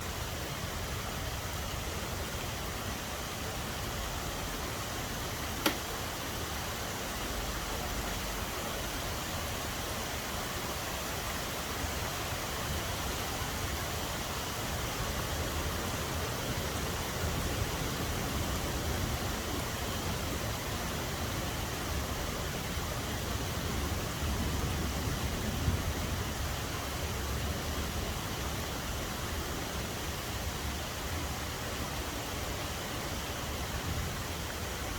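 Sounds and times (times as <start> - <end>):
steady rain falling: 0.0 - 34.9
sharp click: 5.6 - 5.9.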